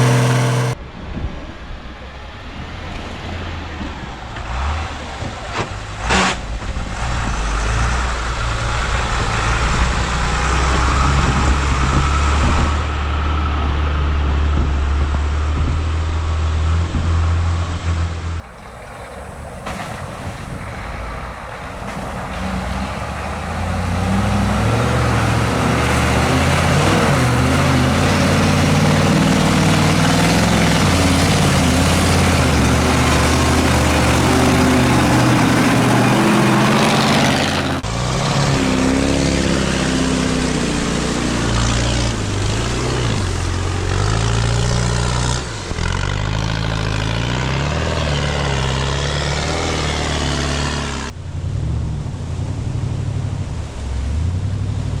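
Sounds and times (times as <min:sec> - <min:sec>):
truck engine revving under load: 0:00.0 - 0:00.8, 0:04.4 - 0:55.0
broad rushing noise: 0:00.0 - 0:01.0, 0:18.4 - 0:43.7.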